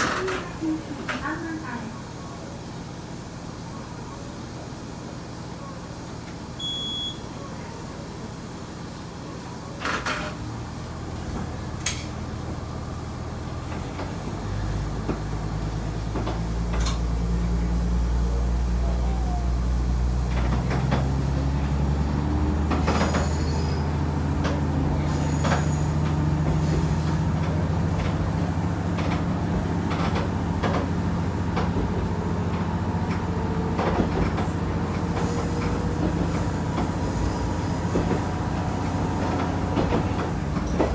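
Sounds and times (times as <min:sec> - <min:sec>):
diesel railcar engine: 0:00.0 - 0:40.9
wheels clacking over rail joints: 0:09.7 - 0:18.8, 0:19.6 - 0:40.9.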